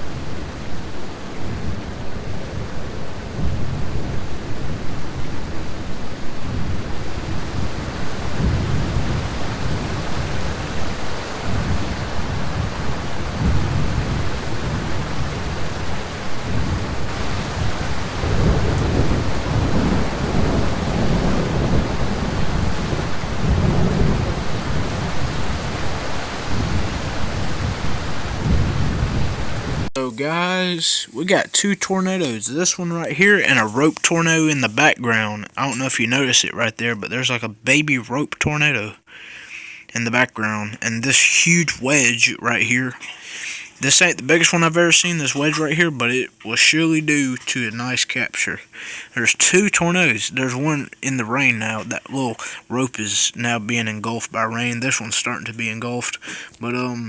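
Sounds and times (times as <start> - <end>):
wind: 0.0 - 39.1
rain: 0.0 - 57.0.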